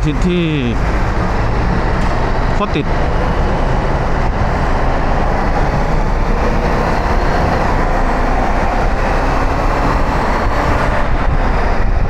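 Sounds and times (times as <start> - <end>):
motorcycle engine rumble: 0.0 - 9.0
wind noise on microphone: 0.8 - 12.0.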